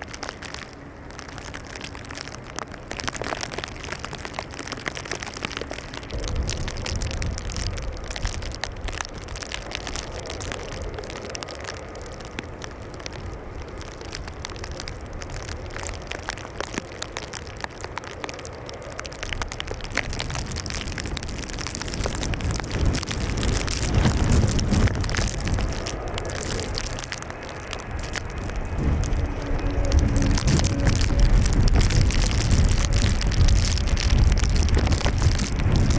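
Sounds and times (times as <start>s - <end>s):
rain: 0.0s - 35.9s
wind on microphone: 0.0s - 35.9s
low rumble: 5.9s - 12.7s, 19.0s - 35.9s.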